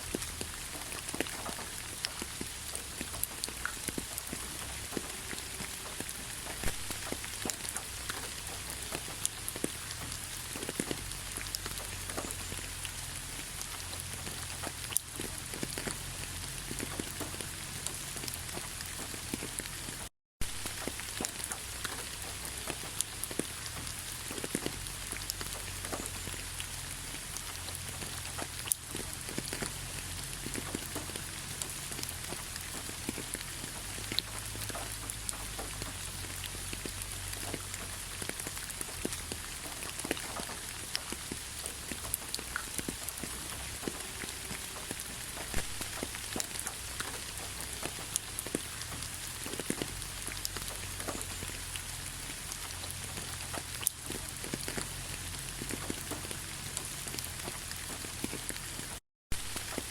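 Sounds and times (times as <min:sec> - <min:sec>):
raindrops ticking close by: 0:00.0 - 0:59.9
steady rainfall hiss: 0:00.0 - 0:59.9.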